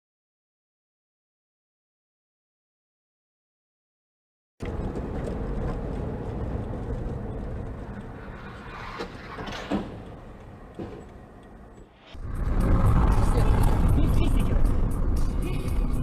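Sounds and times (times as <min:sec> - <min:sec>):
car road and engine rumble: 0:04.6 - 0:16.0.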